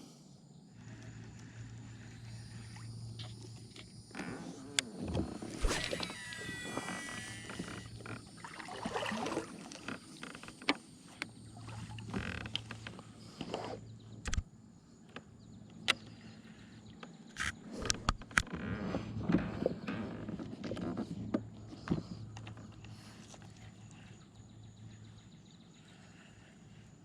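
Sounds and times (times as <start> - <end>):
soft water sounds: 0.8 - 4.2, 5.0 - 13.8.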